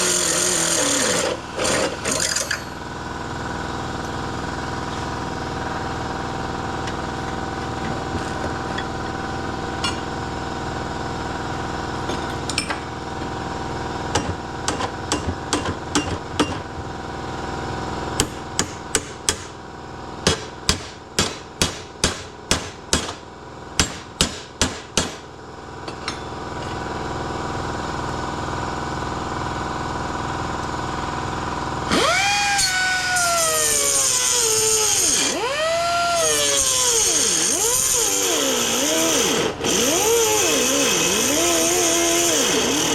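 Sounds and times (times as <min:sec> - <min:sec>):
power tool whine: 0:00.0 - 0:05.2, 0:31.4 - 0:42.9
continuous machine hum: 0:00.0 - 0:42.9.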